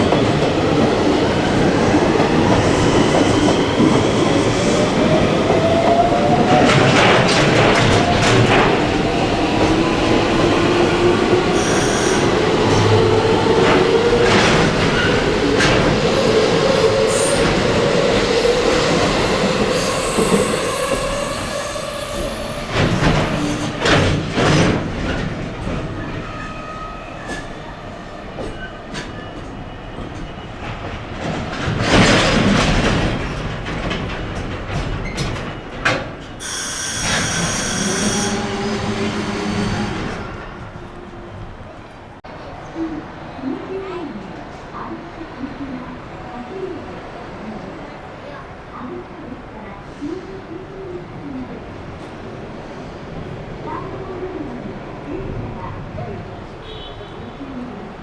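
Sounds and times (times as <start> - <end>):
train wheels clacking over rail joints: 6.4 - 9.0, 22.2 - 26.2, 28.4 - 38.4
electric train motor whine: 36.4 - 38.8.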